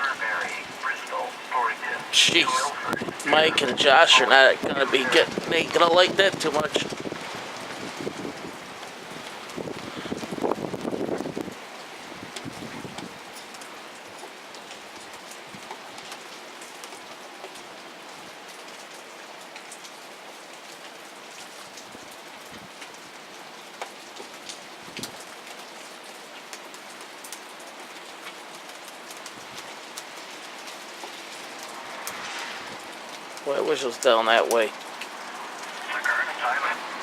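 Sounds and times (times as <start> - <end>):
raindrops ticking on surface: 0.0 - 37.0
steady rain hiss: 0.0 - 37.0.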